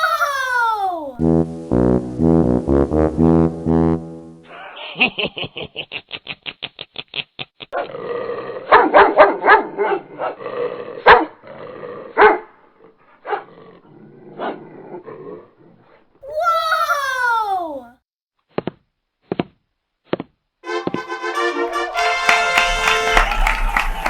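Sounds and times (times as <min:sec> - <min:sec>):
dog barking: 0:08.7 - 0:10.4, 0:11.1 - 0:11.4, 0:12.2 - 0:12.5, 0:13.2 - 0:13.5.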